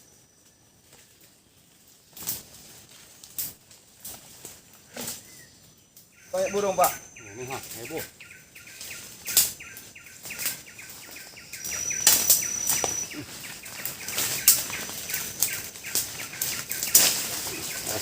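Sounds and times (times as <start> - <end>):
sharp cracks and rustles: 0.8 - 5.4, 7.6 - 18.0
bird chirping rapidly: 6.1 - 18.0
high steady bird whistle: 11.1 - 17.0.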